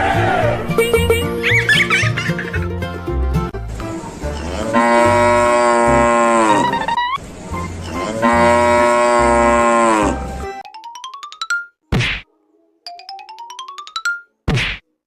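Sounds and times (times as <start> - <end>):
music with steady beat: 0.6 - 1.7
cow mooing: 4.4 - 6.8, 7.9 - 10.3.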